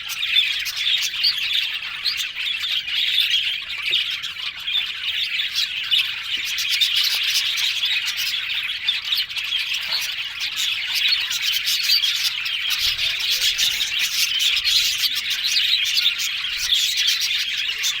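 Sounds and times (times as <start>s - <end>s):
budgerigars chirping: 0.0s - 18.0s.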